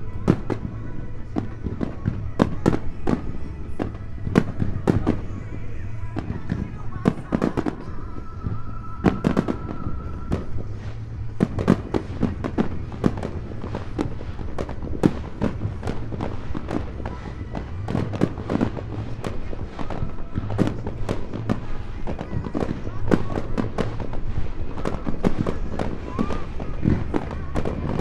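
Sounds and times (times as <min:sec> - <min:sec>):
fireworks bursting: 0:00.0 - 0:28.0.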